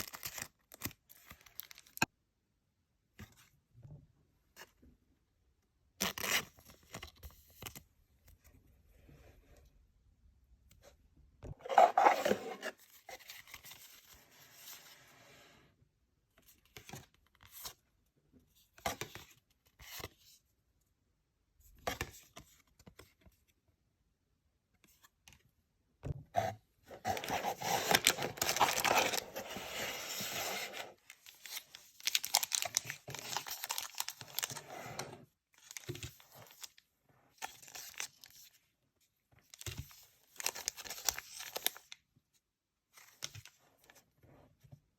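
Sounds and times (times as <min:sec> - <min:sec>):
wrappers tearing and crinkling: 0:27.1 - 0:29.8, 0:31.4 - 0:34.7.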